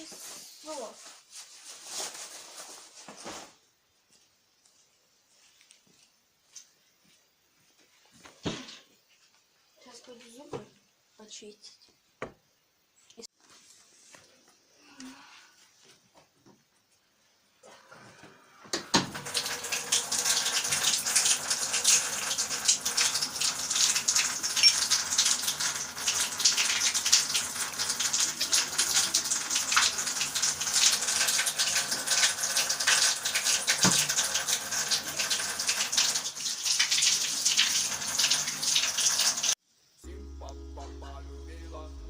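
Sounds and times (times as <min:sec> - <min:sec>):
water running from a tap: 0:19.0 - 0:39.6.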